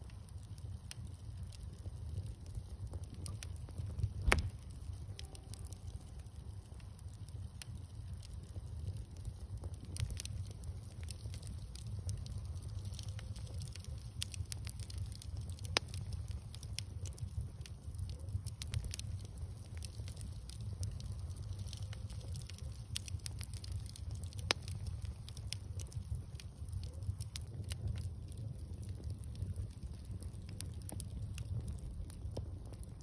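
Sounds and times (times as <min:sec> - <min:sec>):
bonfire crackling: 0:00.0 - 0:33.0
low rumble: 0:03.8 - 0:05.6
sharp wood snaps: 0:04.2 - 0:04.7.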